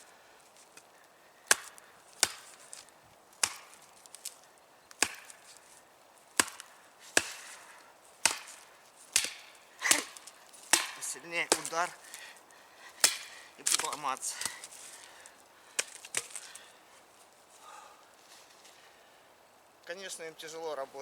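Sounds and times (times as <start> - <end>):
machete chopping rotten wood: 1.5 - 2.8, 3.4 - 5.6, 6.3 - 7.6, 8.2 - 12.0, 13.0 - 14.7, 15.8 - 16.5.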